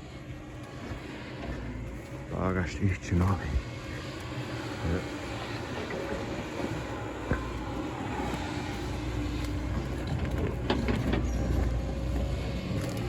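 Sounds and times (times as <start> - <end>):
diesel engine rumbling: 0.0 - 13.0
knocks and clanks: 9.4 - 13.0.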